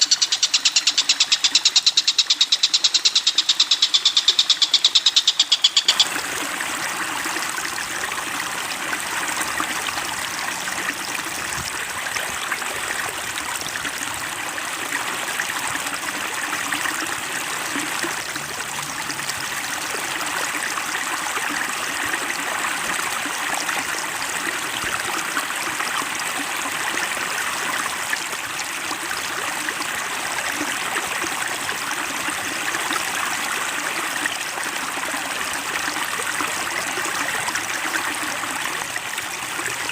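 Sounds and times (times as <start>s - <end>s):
rapid pulsing bird call: 0.0s - 6.1s
stream trickling and babbling: 0.0s - 39.9s.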